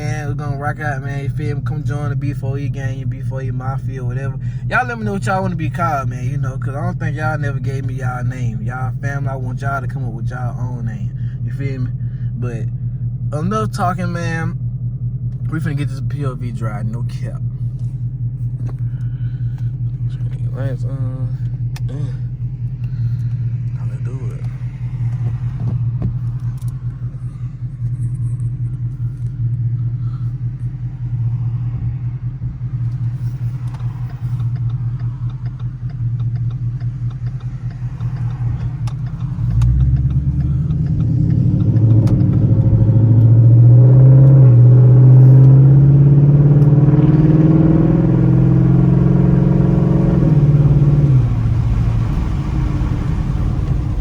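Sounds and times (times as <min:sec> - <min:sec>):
car engine idling and accelerating: 0:00.0 - 0:54.0.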